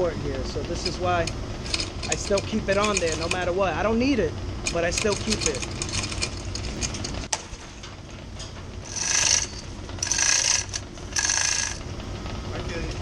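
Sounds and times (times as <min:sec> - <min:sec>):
chain hoist ratchet rasping: 0:00.7 - 0:03.8, 0:04.6 - 0:07.3, 0:08.8 - 0:11.9.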